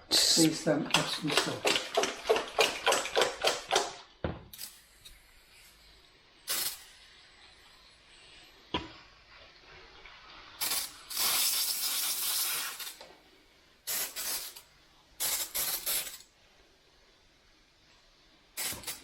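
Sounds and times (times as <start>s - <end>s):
spray bottle misting: 10.6s - 13.0s, 13.9s - 14.6s, 15.2s - 16.2s, 18.6s - 19.0s.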